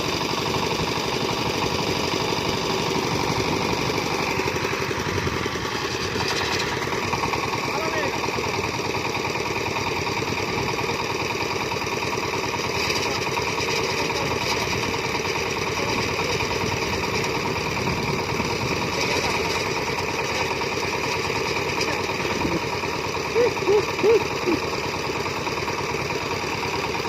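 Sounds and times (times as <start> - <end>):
farm machine engine chugging: 0.0 - 27.0.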